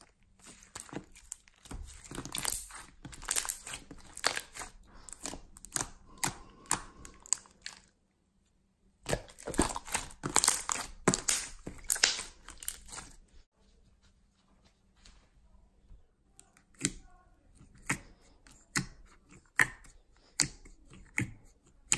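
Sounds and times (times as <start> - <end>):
slime crackling and popping: 0.4 - 7.9, 9.1 - 13.2.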